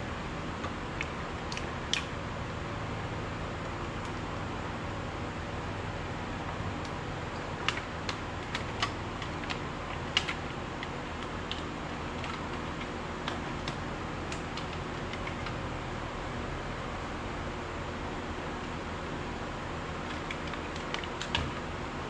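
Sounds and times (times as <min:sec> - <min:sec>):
light clicks and taps: 0:07.6 - 0:15.6.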